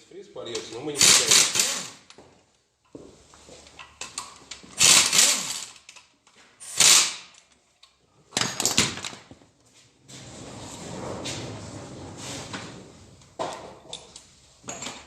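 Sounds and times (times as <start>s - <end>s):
tool noise bursts: 1.0s - 2.1s, 4.8s - 5.8s, 6.6s - 7.4s.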